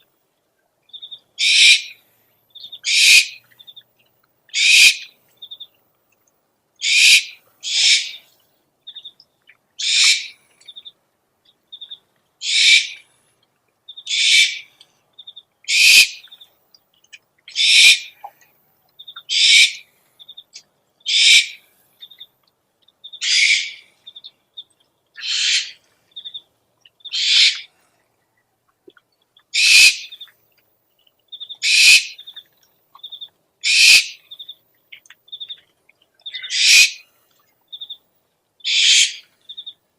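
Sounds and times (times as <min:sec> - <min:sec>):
owl screeching: 0:01.4 - 0:01.9, 0:02.8 - 0:03.4, 0:04.6 - 0:05.0, 0:06.8 - 0:08.2, 0:09.8 - 0:10.3, 0:12.4 - 0:13.0, 0:14.1 - 0:14.7, 0:15.7 - 0:16.2, 0:17.5 - 0:18.1, 0:19.3 - 0:19.8, 0:21.1 - 0:21.6, 0:23.2 - 0:23.8, 0:25.2 - 0:25.8, 0:27.1 - 0:27.7, 0:29.6 - 0:30.1, 0:31.6 - 0:32.2, 0:33.6 - 0:34.2, 0:36.4 - 0:37.0, 0:38.7 - 0:39.2.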